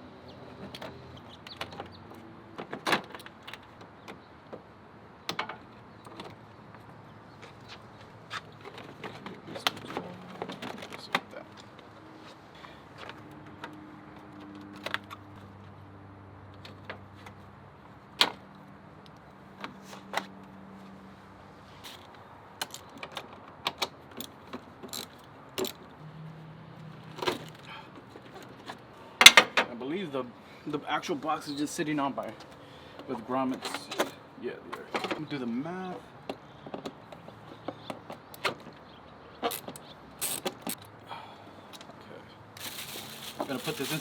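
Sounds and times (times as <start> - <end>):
clinks of hand tools and parts: 21.8 - 25.9.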